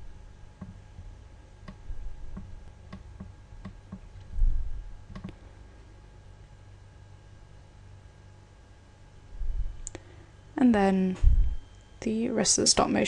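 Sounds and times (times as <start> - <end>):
dull low thump: 1.7 - 5.3, 11.2 - 11.6
computer mouse clicks: 5.1 - 5.4.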